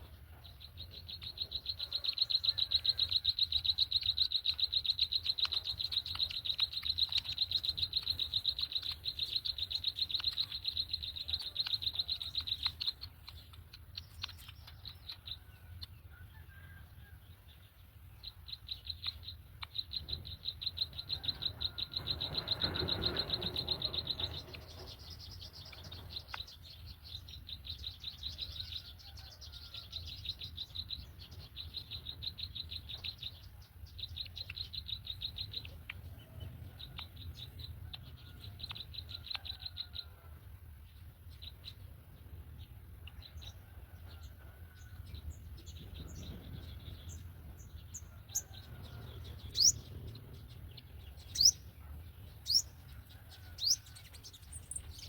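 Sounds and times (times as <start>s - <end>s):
pulsed chirping trills: 0.3s - 16.0s, 18.1s - 28.7s, 45.2s - 55.0s.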